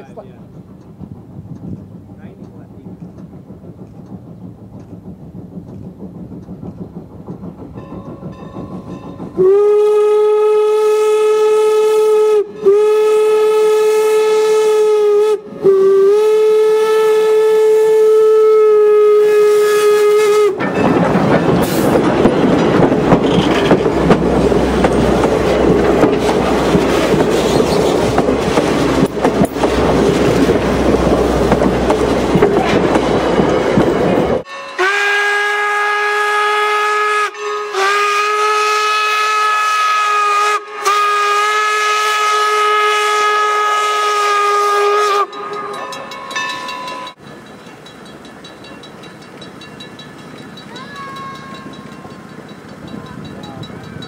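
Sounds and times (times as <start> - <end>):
train rushing past: 0.0 - 54.0
steam locomotive whistle blasts: 9.4 - 20.6, 34.5 - 45.9.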